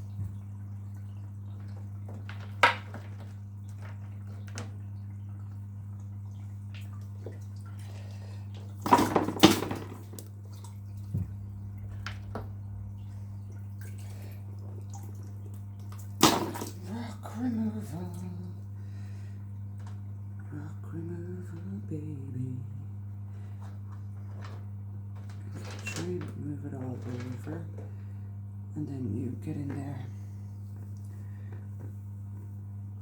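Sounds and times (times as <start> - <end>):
aquarium pump humming: 0.0 - 33.0
stones clattering and splashing: 1.6 - 4.8, 8.7 - 10.4, 15.9 - 16.9.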